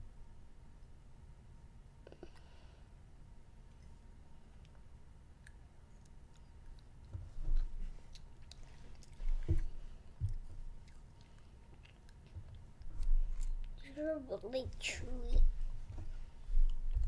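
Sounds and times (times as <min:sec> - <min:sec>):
child chewing candy: 0:03.7 - 0:13.8, 0:16.4 - 0:17.0.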